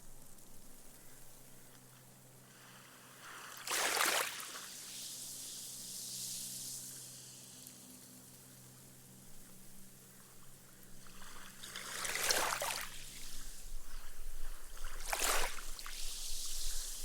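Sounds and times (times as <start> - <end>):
wave wash hissing up sand: 2.4 - 17.0
small wave breaking on sand: 2.8 - 5.0, 11.0 - 14.0, 14.9 - 16.9.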